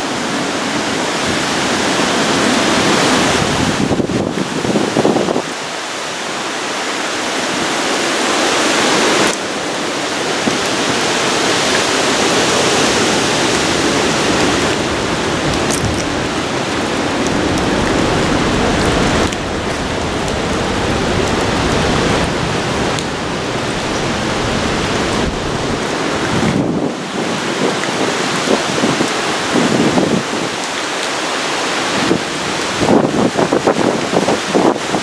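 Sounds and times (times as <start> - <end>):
heavy rain: 0.0 - 35.0
roaring wind: 0.0 - 35.0.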